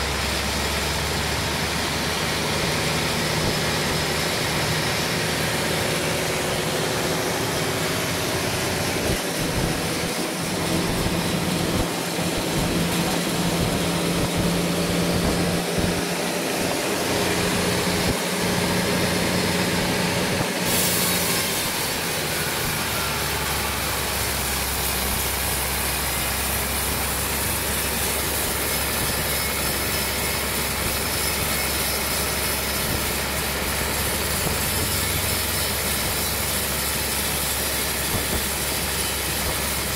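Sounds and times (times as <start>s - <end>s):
deep steady hum: 0.0s - 20.9s
loud hiss: 0.0s - 39.9s
sawmill machinery running: 0.0s - 39.9s.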